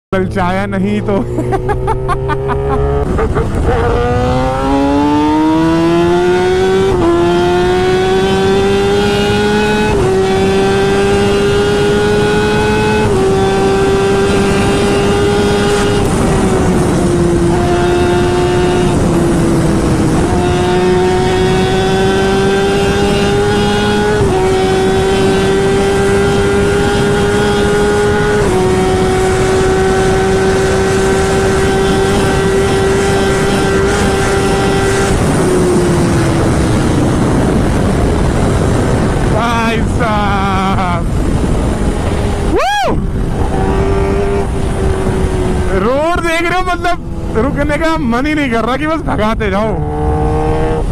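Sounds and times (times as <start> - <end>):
motorcycle engine accelerating: 0.2 - 50.9
wind noise: 0.2 - 50.9.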